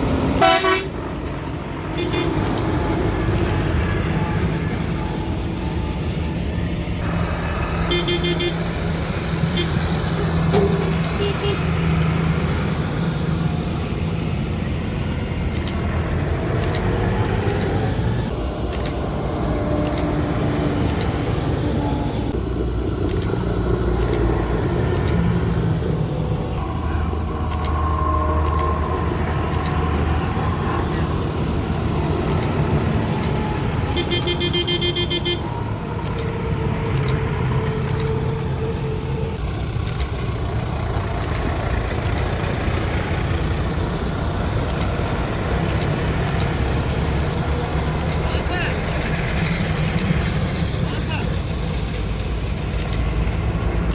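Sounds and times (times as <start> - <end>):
tractors driving past: 0.0 - 53.9
horns tooting: 0.1 - 6.0, 7.0 - 14.8, 26.6 - 39.6.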